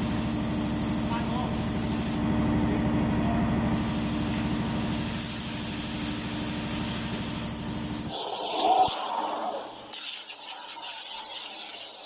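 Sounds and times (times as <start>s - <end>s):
refrigeration compressor humming: 0.0s - 8.2s.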